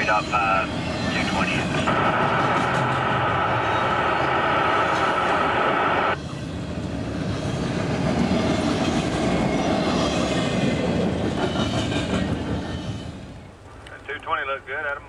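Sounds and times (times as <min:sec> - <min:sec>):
freight train rumbling on rails: 0:00.0 - 0:13.5.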